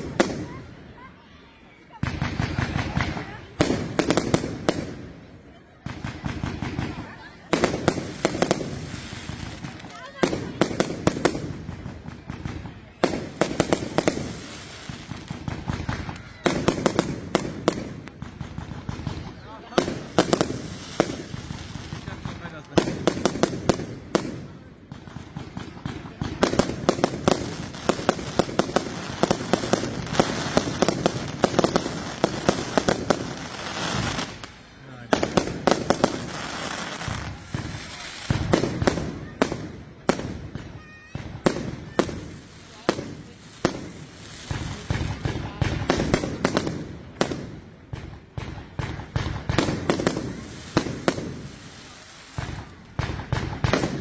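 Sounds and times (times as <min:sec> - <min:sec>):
firework bangs: 0:00.0 - 0:01.1, 0:01.8 - 0:54.0
firework crackle: 0:00.0 - 0:54.0.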